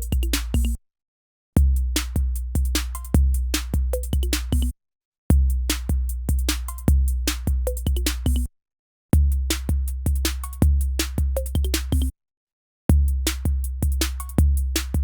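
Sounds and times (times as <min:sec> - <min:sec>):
snare and hi-hat hits: 0:00.0 - 0:00.8, 0:01.9 - 0:04.7, 0:05.7 - 0:08.5, 0:09.5 - 0:12.1, 0:13.2 - 0:15.0
deep booming kick drum: 0:01.6 - 0:04.7, 0:05.3 - 0:08.5, 0:09.2 - 0:12.0, 0:12.9 - 0:15.0.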